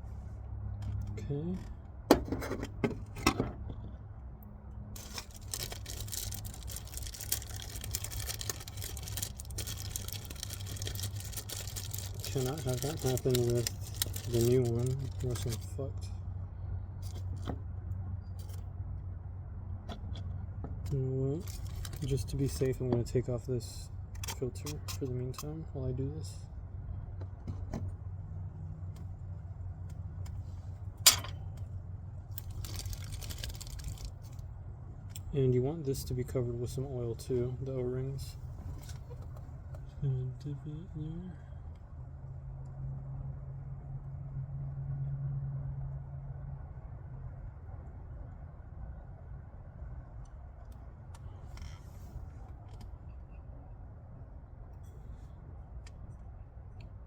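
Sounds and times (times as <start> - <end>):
rustling and light clicks of handling: 5.0 - 16.1, 19.8 - 23.4, 24.1 - 25.7, 36.7 - 39.9.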